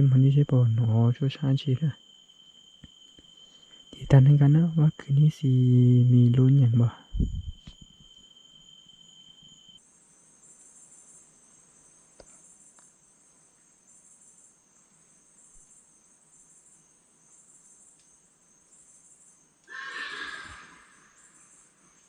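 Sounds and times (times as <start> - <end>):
high pulsing chirp: 0.0 - 9.8
night insects shrilling: 0.0 - 22.0.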